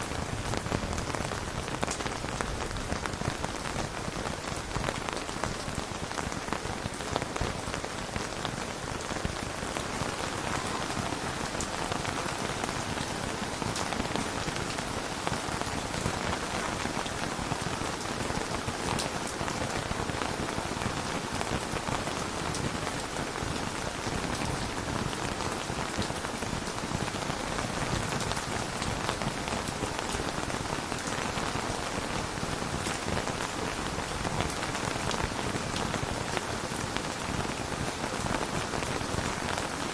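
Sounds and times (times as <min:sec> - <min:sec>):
rain hiss: 0:00.0 - 0:39.9
raindrop ticks: 0:04.5 - 0:21.8.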